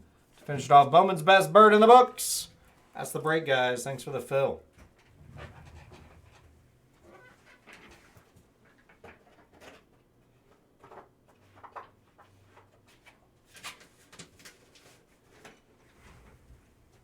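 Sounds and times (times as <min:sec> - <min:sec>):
faint low hum: 0:04.2 - 0:07.4
soft clicks and rustles of handling: 0:04.8 - 0:16.6.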